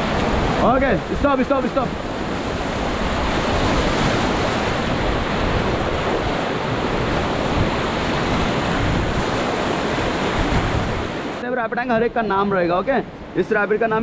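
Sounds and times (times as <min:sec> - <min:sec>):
river water rushing: 0:00.0 - 0:11.4
wind buffeting microphone: 0:00.0 - 0:12.2.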